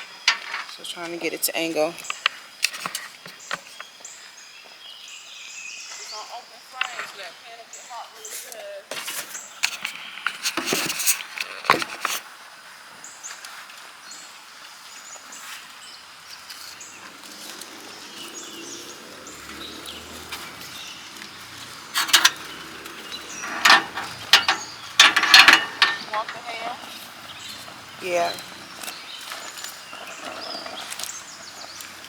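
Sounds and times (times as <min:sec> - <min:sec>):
cookware knocking and clattering: 0:23.4 - 0:26.6.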